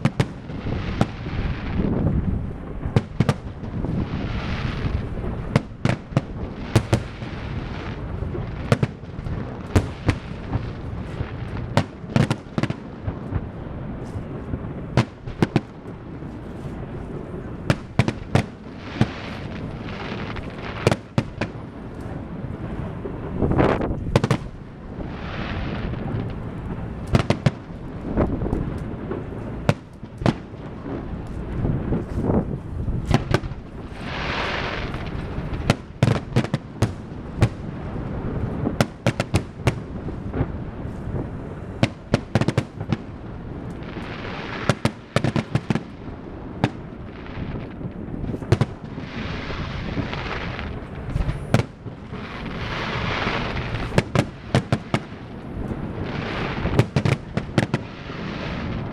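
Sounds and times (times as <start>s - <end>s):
fireworks bangs: 0.0s - 58.9s
fireworks hissing crackle: 0.0s - 58.9s.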